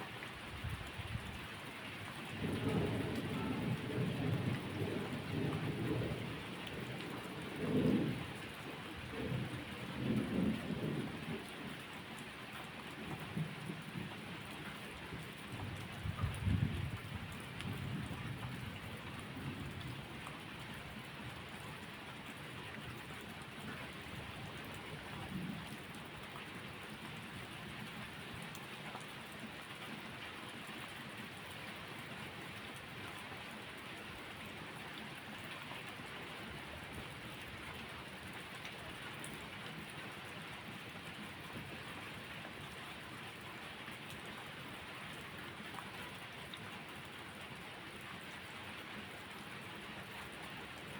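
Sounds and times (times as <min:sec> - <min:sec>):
heavy rain falling: 0:00.0 - 0:50.9
thunder rumbling: 0:02.3 - 0:08.4.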